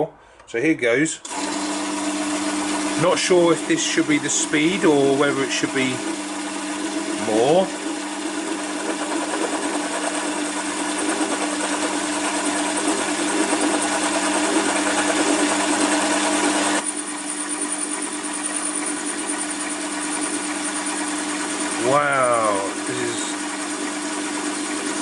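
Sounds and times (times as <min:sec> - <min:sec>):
lathe motor humming: 0:01.2 - 0:25.0
hissing cutting noise: 0:21.8 - 0:23.4.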